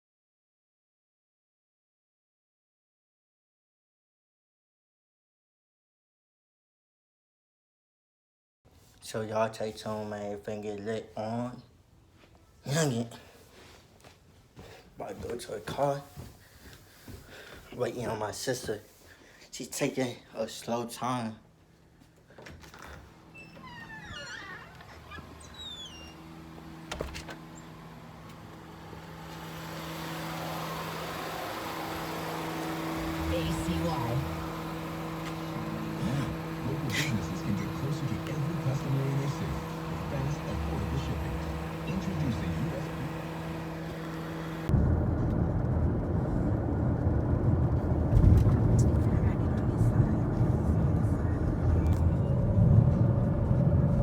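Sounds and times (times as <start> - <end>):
low rumble of a car: 23.3 - 54.0
steady low hum: 25.1 - 54.0
held low tones: 27.5 - 54.0.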